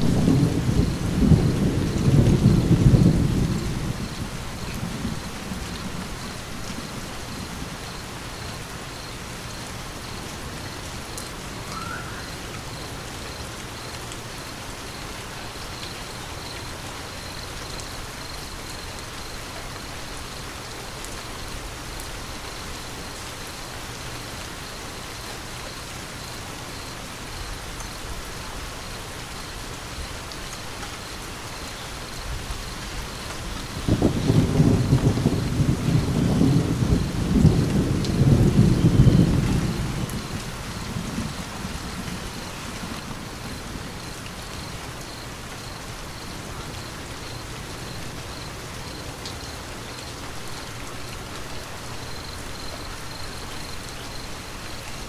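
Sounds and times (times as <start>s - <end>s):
thunder rumble: 0.0s - 8.2s, 32.2s - 49.2s
steady rain falling: 0.0s - 55.0s.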